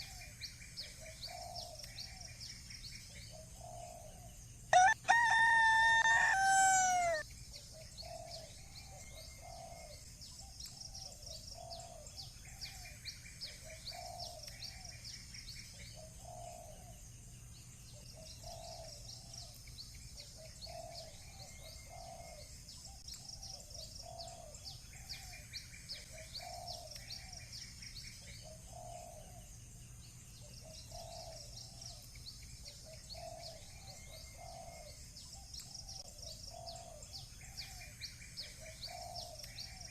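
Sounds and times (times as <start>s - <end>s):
small birds chirping: 0.0s - 39.9s
rooster crowing: 4.7s - 7.2s
dove cooing: 5.6s - 7.2s.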